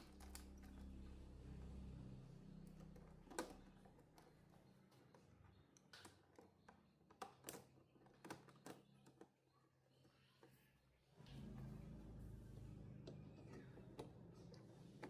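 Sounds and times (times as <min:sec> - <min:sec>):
low hum: 0:00.2 - 0:03.1, 0:11.2 - 0:14.5.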